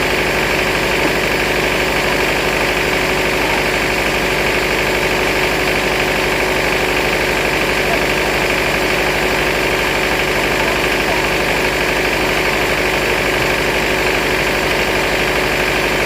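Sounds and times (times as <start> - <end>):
band sawmill drone: 0.0 - 16.0.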